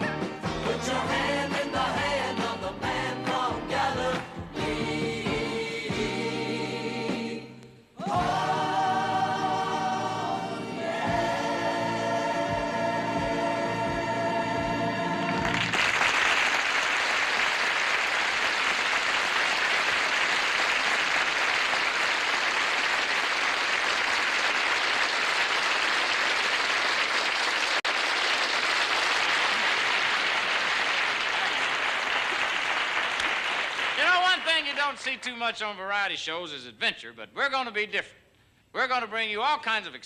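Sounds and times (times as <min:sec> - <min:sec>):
choir and band chord: 0:00.0 - 0:15.6
audience applauding: 0:15.3 - 0:35.0.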